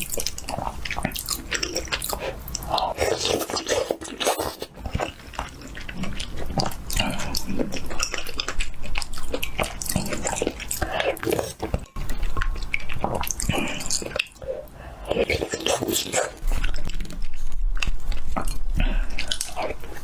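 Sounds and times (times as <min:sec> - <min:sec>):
wet chewing and smacking: 0:00.0 - 0:20.0.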